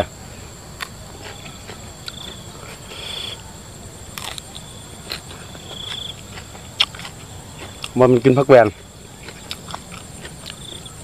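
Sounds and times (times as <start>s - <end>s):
crickets chirping: 0.0s - 11.0s
person chewing raw vegetables: 0.8s - 3.2s, 4.1s - 8.0s, 8.7s - 11.0s.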